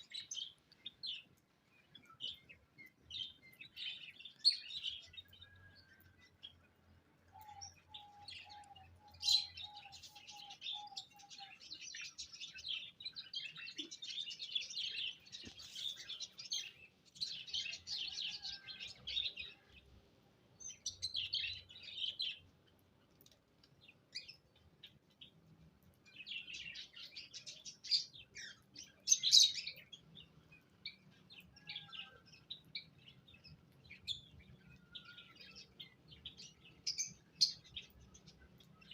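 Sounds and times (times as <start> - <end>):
lower evenly spaced bird notes: 0.0 - 19.8, 20.5 - 23.0
small birds chirping: 0.0 - 38.9.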